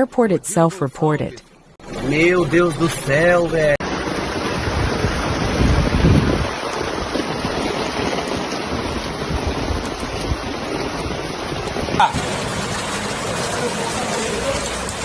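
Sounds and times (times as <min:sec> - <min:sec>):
floodwater and rain rushing: 0:01.8 - 0:15.0
wind buffeting the microphone: 0:04.3 - 0:13.4.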